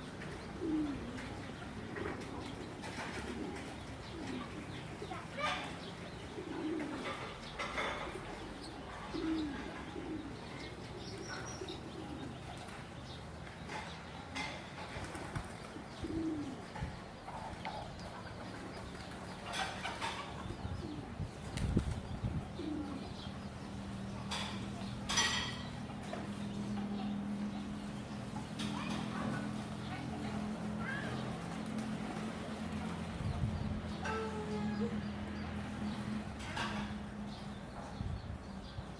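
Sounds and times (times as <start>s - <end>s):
pigeons cooing: 0.0s - 38.9s
wings fluttering: 14.8s - 16.2s.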